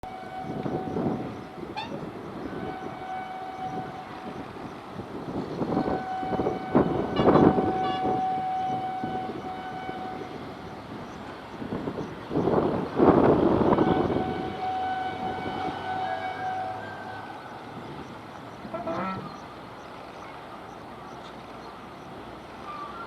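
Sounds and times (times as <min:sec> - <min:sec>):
steady high horn tone: 0:00.0 - 0:04.6, 0:05.6 - 0:10.7, 0:13.6 - 0:17.6, 0:18.6 - 0:19.4
train rumbling: 0:00.0 - 0:23.0.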